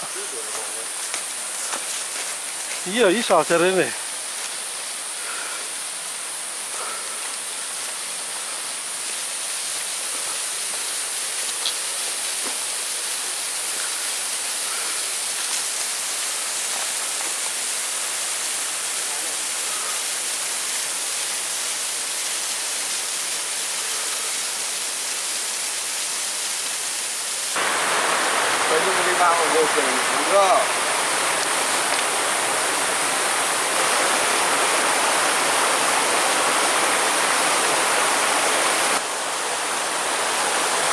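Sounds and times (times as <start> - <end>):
waterfall rushing: 0.0 - 1.1, 2.8 - 4.1, 27.0 - 40.9.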